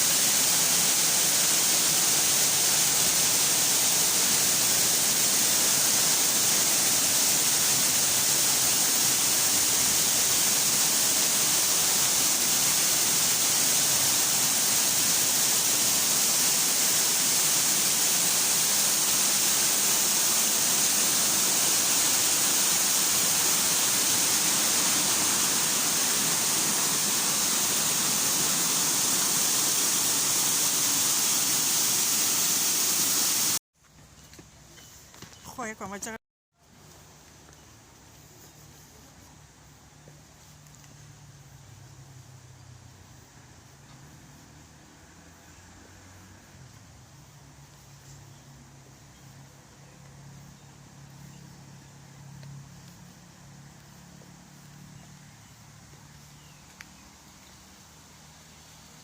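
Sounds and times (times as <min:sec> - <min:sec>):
falling water rushing: 0:00.0 - 0:33.6.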